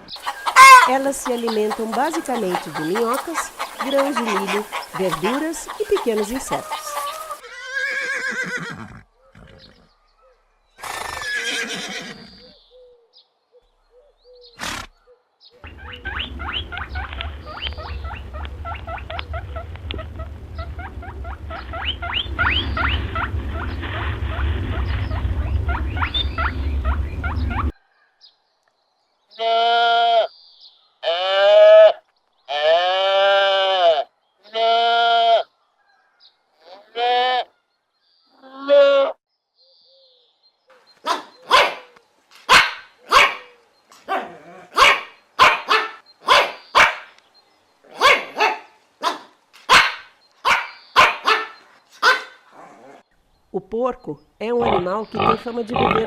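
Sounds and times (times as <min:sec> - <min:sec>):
wavering bleat-like cries: 0:29.3 - 0:30.3, 0:31.0 - 0:35.5, 0:36.6 - 0:37.5, 0:38.4 - 0:39.2
sharp bark-like calls: 0:41.0 - 0:47.2, 0:47.9 - 0:52.5.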